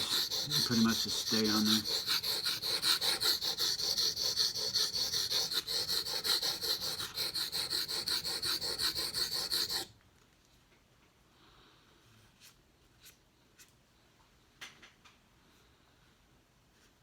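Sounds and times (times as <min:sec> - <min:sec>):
knife scraping on whetstone: 0:00.0 - 0:09.9.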